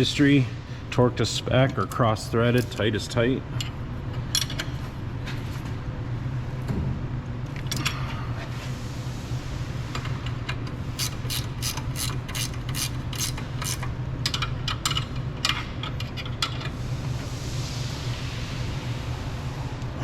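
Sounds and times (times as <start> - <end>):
ratchet wrench clicking: 11.0 - 16.6.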